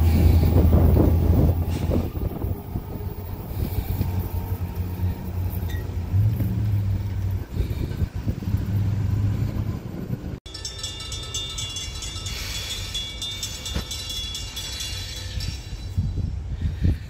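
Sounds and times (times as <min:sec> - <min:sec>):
train engine drone: 0:00.0 - 0:17.0
high ringing tones: 0:04.6 - 0:06.1, 0:10.5 - 0:16.4.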